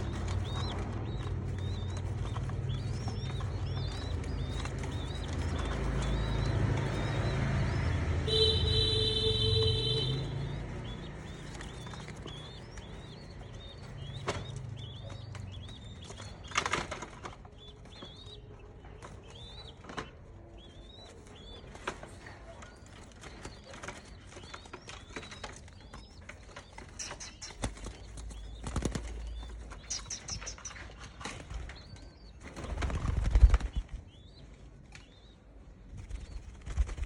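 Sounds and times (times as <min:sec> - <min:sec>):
small bird chirping: 0:00.0 - 0:37.0.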